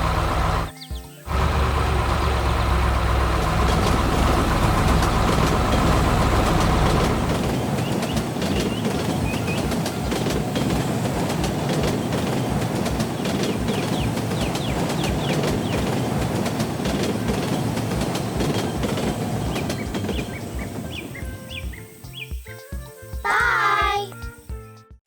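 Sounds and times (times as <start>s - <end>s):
rumbling machinery noise: 0.0s - 0.7s, 1.3s - 22.0s
bird chirps: 3.6s - 10.9s, 13.0s - 16.2s, 17.2s - 22.8s.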